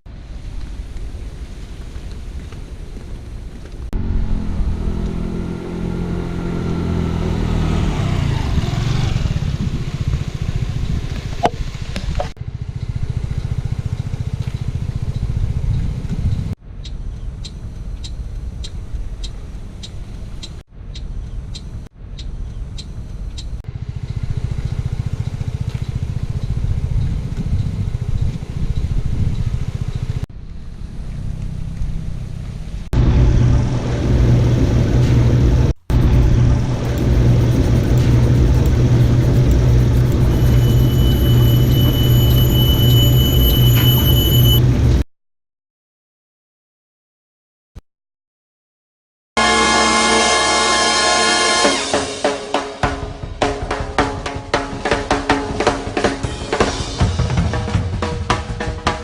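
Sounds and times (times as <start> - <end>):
vehicle engine and road noise: 0.1 - 45.0
vehicle passing: 4.0 - 16.2, 23.7 - 45.0.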